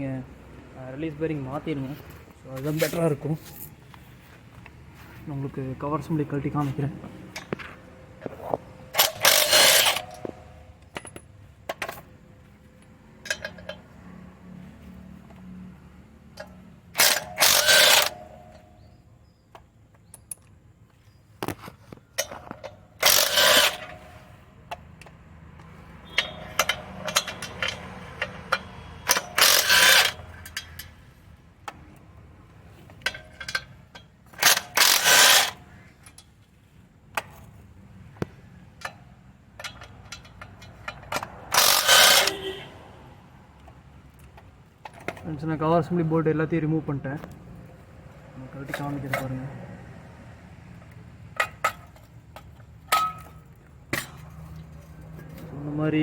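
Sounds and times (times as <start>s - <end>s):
metal tools clinking: 6.4s - 12.1s, 12.7s - 13.9s, 16.4s - 19.0s, 21.5s - 24.4s, 26.0s - 31.1s, 32.8s - 36.4s, 38.8s - 42.6s, 51.3s - 55.8s
ratchet wrench ratcheting: 8.9s - 11.9s, 16.4s - 18.7s, 22.2s - 24.3s, 26.0s - 31.0s, 33.0s - 36.3s, 38.8s - 42.6s.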